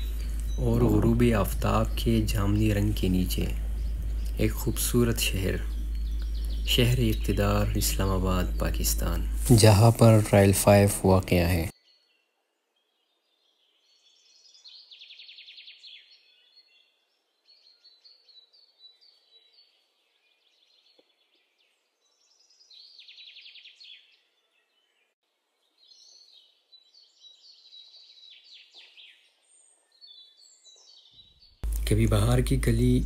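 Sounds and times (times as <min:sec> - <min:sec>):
fast rattling bird trill: 0:00.0 - 0:11.1
faint songbirds chirping: 0:00.0 - 0:33.0.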